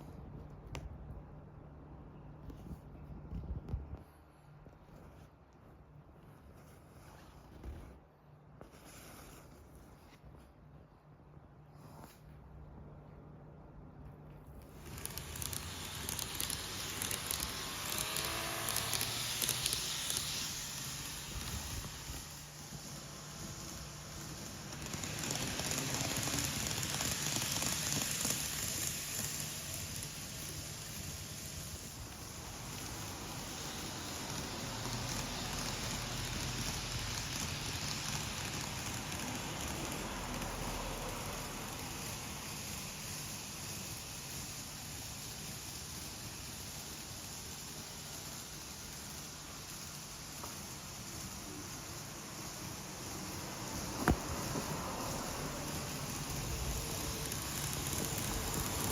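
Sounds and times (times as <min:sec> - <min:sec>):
traction motor whine: 0:14.7 - 0:43.8, 0:50.1 - 0:58.9
train wheels rumbling: 0:14.7 - 0:58.9.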